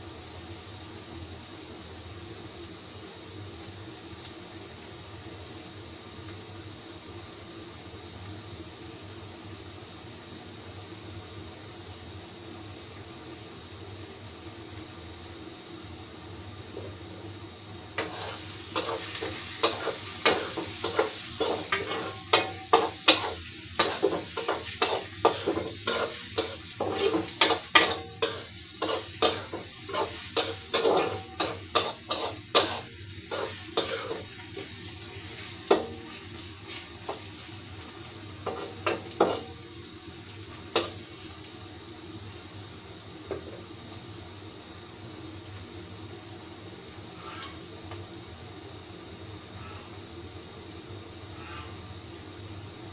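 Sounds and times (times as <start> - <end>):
food sizzling in oil: 0.0 - 52.9
spatula scraping a frying pan: 18.0 - 37.8, 38.4 - 39.6.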